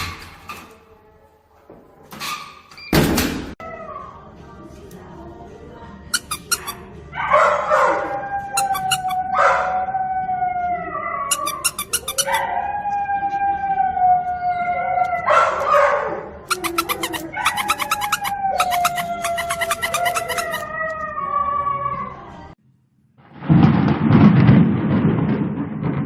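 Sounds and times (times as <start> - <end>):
dog howling: 7.8 - 15.6, 16.5 - 22.2.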